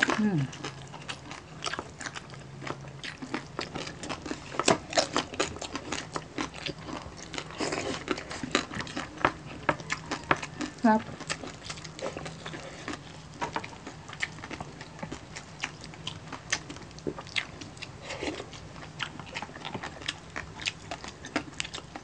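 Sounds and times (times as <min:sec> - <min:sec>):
crunchy chewing: 0:00.0 - 0:22.0.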